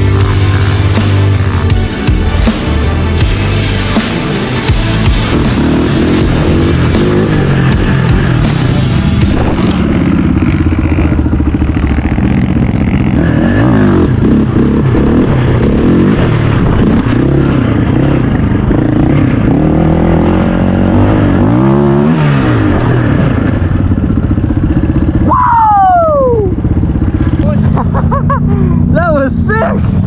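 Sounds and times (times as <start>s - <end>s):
high whine dropping in pitch: 0.0s - 20.5s
off-road vehicle engine revving: 0.0s - 25.3s, 26.2s - 30.0s.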